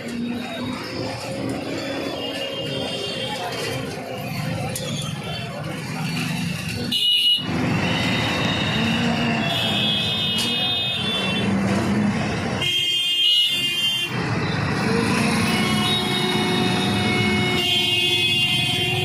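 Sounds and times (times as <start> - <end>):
city street traffic: 0.0 - 19.0
vehicle horns: 0.8 - 5.4, 6.3 - 19.0.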